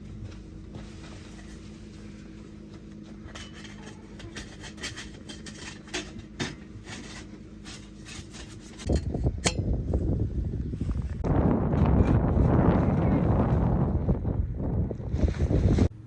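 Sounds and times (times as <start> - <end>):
wind buffeting microphone: 8.8 - 16.0.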